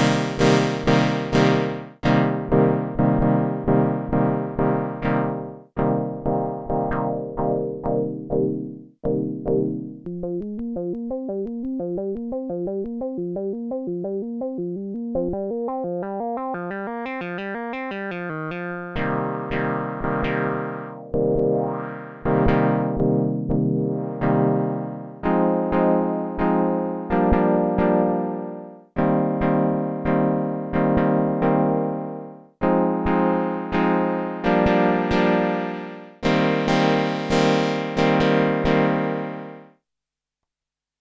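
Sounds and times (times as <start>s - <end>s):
synthesizer plucky chords: 0.0s - 39.6s.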